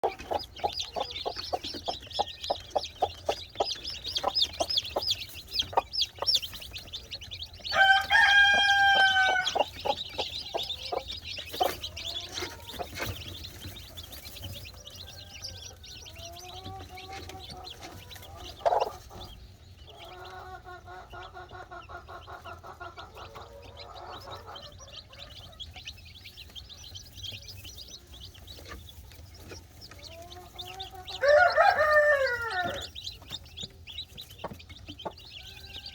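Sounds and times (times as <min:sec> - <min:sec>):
chicks peeping: 0:00.0 - 0:35.9
hen clucking: 0:00.0 - 0:35.9
rooster crowing: 0:07.7 - 0:09.6, 0:31.1 - 0:32.9.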